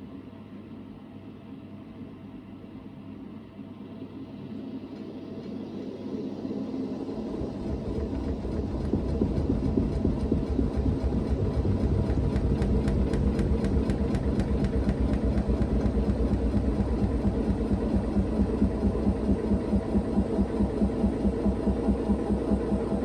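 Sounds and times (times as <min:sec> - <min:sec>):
washing machine drum spinning: 0:07.5 - 0:21.4.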